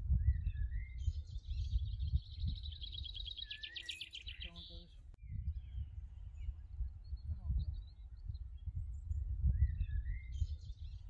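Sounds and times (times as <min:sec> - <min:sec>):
songbird trilling: 0:00.2 - 0:05.8
bird whistled glides: 0:02.4 - 0:04.5.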